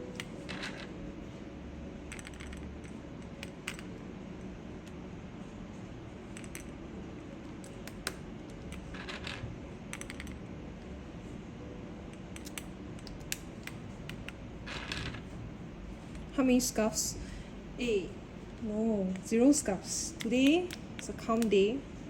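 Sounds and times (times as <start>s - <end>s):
keycaps clicking and clattering: 2.1s - 3.9s, 7.5s - 10.4s.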